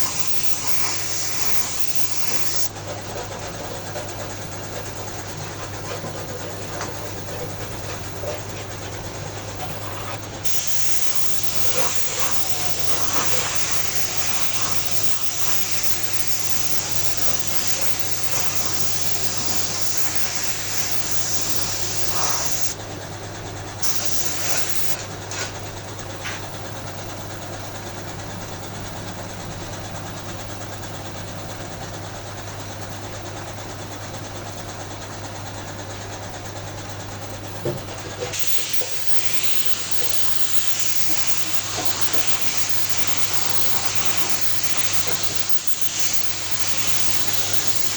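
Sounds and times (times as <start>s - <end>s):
spray gun hissing: 0.0s - 2.8s, 4.5s - 22.8s, 23.8s - 25.0s, 38.2s - 47.9s.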